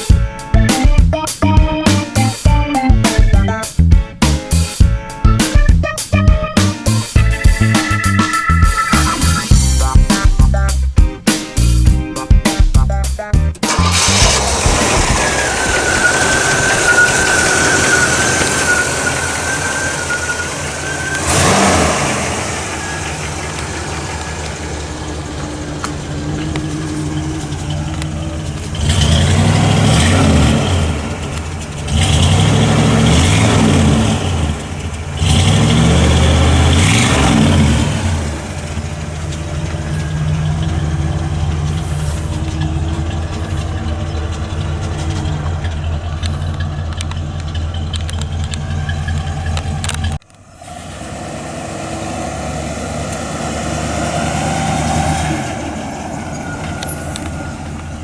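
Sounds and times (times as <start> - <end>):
car engine idling and revving: 0.0 - 58.0
steady high whine: 14.1 - 21.4.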